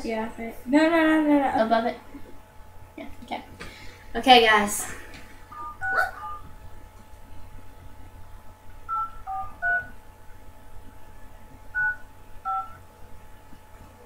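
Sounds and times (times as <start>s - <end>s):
phone keypad touch-tone beeps: 8.9s - 9.9s, 11.8s - 12.8s.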